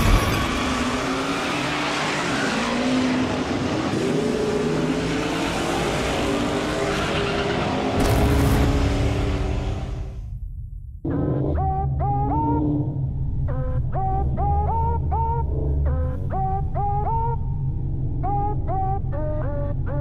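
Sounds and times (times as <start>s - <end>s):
car engines revving: 0.0s - 10.2s
tire and road noise: 0.0s - 10.2s.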